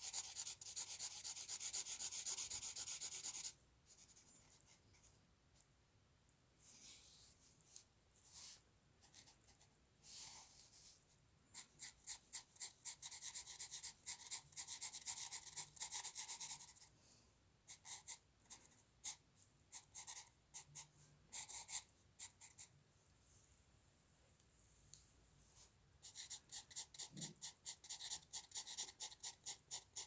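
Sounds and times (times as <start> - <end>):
drawing tool scratching on paper: 0.0 - 4.6, 11.5 - 16.9, 17.7 - 22.7, 26.0 - 30.0.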